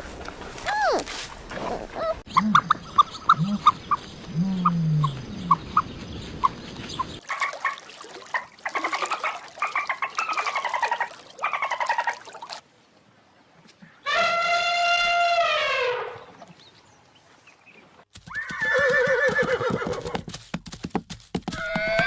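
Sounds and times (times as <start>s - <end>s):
horse whinnying: 18.3s - 20.2s, 21.5s - 22.0s.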